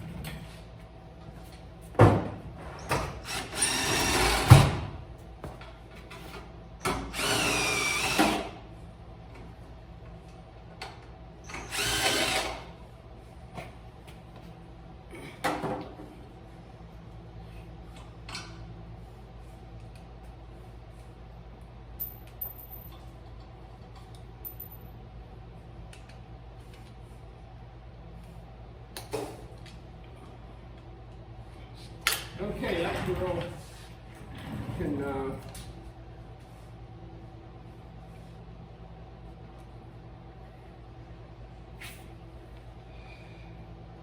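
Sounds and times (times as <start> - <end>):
steady low hum: 0.0 - 44.0
cordless screw gun whine: 3.2 - 4.7, 6.8 - 8.6, 11.5 - 12.8.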